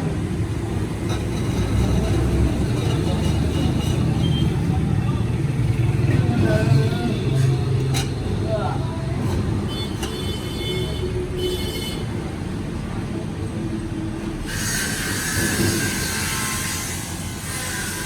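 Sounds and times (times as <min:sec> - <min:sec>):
metal squealing and scraping: 0:00.8 - 0:05.4, 0:14.5 - 0:18.0.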